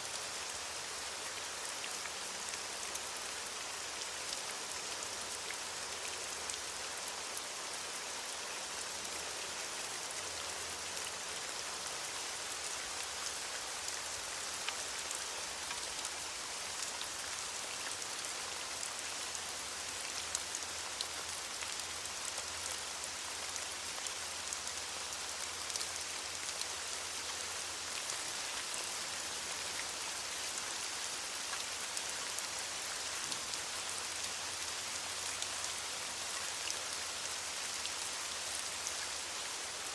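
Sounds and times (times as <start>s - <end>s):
rain pattering on leaves: 0.0s - 39.9s.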